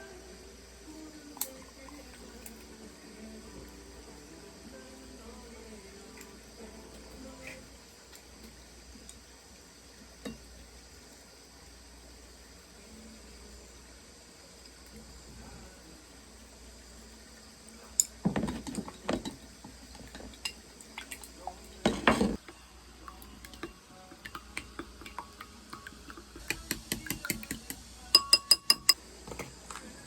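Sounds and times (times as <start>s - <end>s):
dishes and utensils clattering: 18.0s - 19.4s, 21.8s - 22.4s
ringing taps on a dish: 26.5s - 29.0s.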